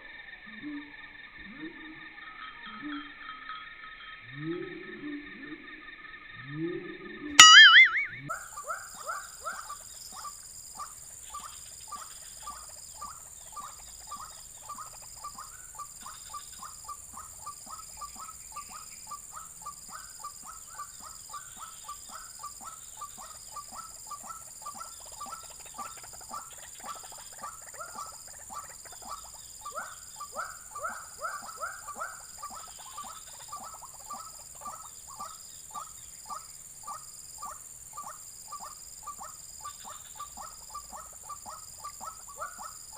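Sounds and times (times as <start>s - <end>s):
bird calling repeated notes: 7.4s - 8.2s
high-pitched drone: 7.4s - 8.2s.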